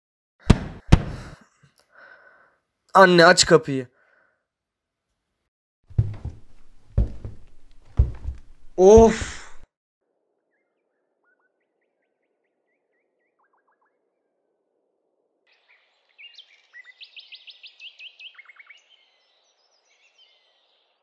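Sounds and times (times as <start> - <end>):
small birds chirping and trilling: 15.5 - 21.0.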